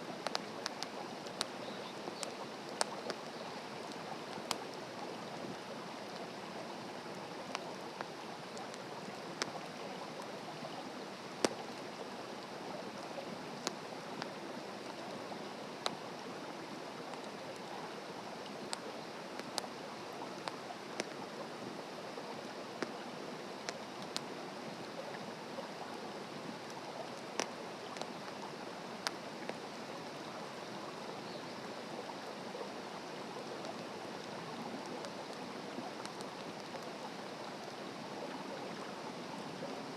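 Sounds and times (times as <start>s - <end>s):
wood fire crackling: 0.0s - 6.4s, 13.4s - 16.3s, 17.0s - 21.6s, 26.5s - 29.7s, 33.4s - 37.1s.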